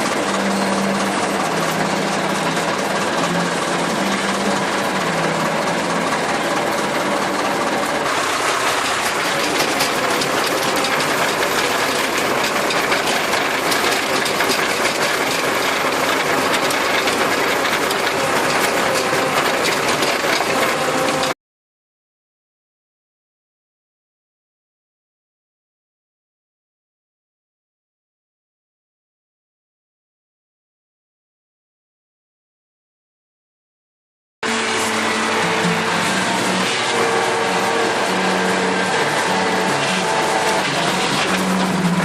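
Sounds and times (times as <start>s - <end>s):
tractor diesel engine clattering: 0.0s - 21.4s, 34.4s - 42.0s.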